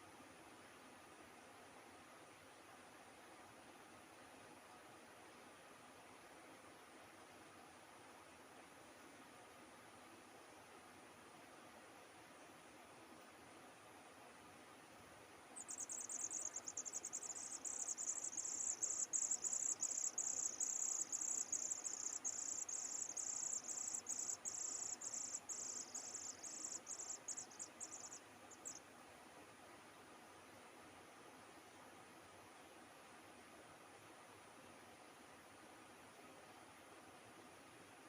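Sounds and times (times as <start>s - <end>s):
insect trilling: 15.6s - 28.8s.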